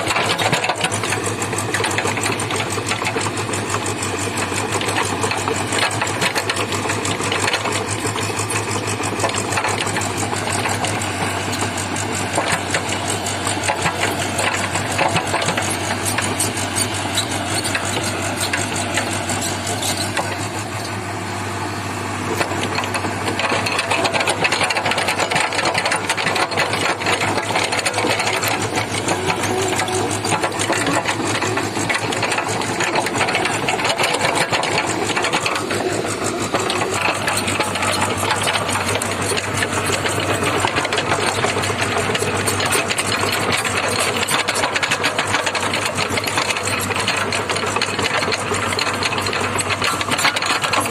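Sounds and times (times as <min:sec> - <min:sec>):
excavator diesel engine rattling: 0:00.0 - 0:50.9.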